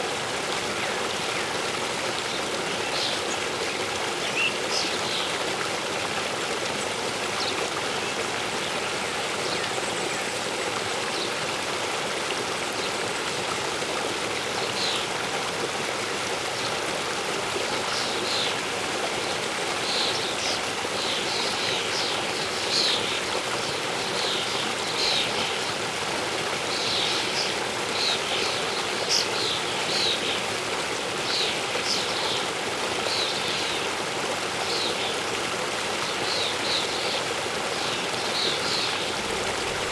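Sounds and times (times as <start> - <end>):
waterfall rushing: 12.7 - 39.9.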